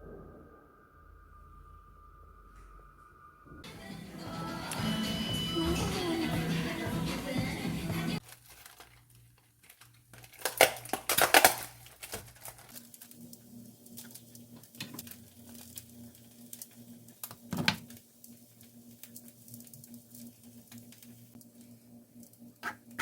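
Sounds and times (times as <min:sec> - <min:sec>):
background music: 0:03.0 - 0:08.2
crinkling and rustling: 0:08.2 - 0:22.4.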